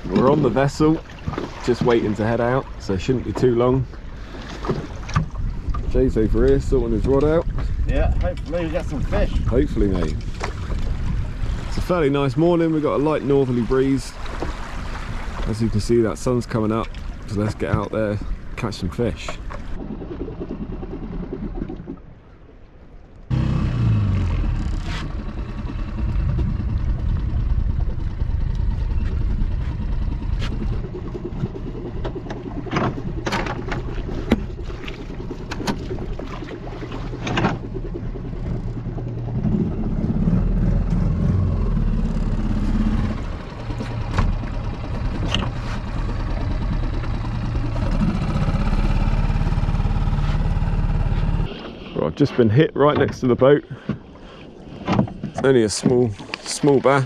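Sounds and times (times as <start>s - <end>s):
outboard motor running: 0.0s - 22.4s, 23.2s - 52.0s
water noise: 0.0s - 57.0s
wind noise: 5.0s - 12.0s, 24.4s - 48.5s.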